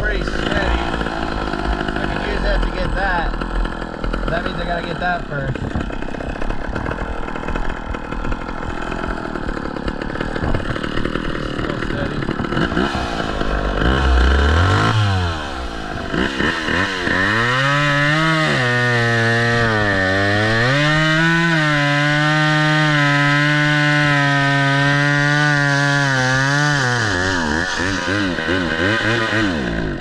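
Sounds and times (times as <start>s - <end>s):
chainsaw running hard: 0.0s - 30.0s.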